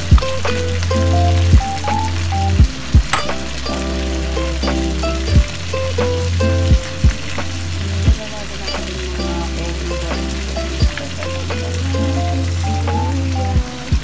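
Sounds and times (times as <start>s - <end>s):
kick drum hits: 0.0s - 0.4s, 2.6s - 3.5s, 6.7s - 7.3s
background music with bass: 0.0s - 14.0s
fish sizzling in hot oil: 0.0s - 14.0s.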